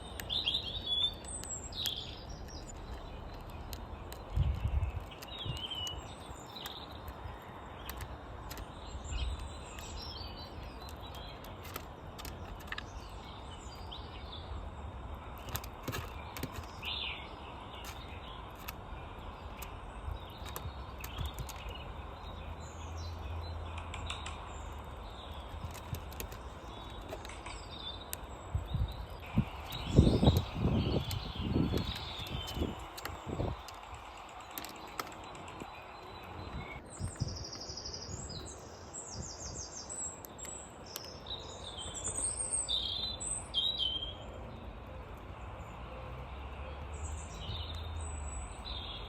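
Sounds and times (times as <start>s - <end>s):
sharp clicks: 0.0s - 13.6s, 15.1s - 17.0s, 17.7s - 22.4s, 23.6s - 37.3s
small birds chirping: 0.0s - 49.0s.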